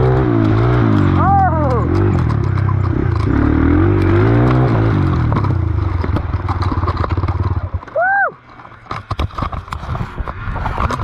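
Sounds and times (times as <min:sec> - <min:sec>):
dirt bike engine revving: 0:00.0 - 0:07.7
bike clattering over rough ground: 0:00.0 - 0:11.0.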